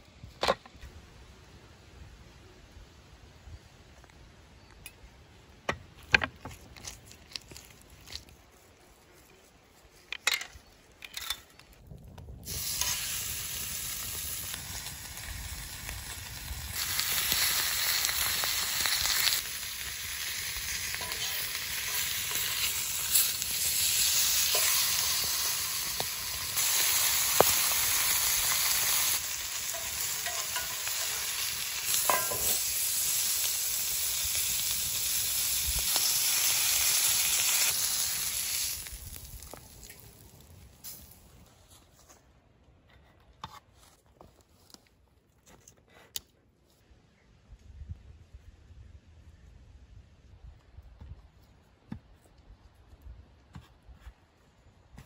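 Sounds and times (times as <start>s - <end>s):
food sizzling in a hot pan: 12.4s - 40.3s.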